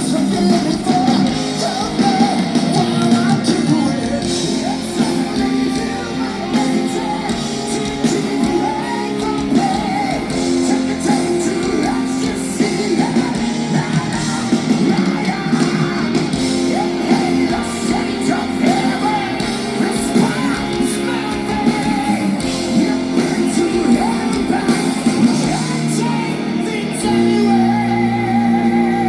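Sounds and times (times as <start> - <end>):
bass: 0.0 - 29.0
drums: 0.0 - 29.0
electric guitars: 0.0 - 29.0
wavering lead vocal: 0.0 - 29.0.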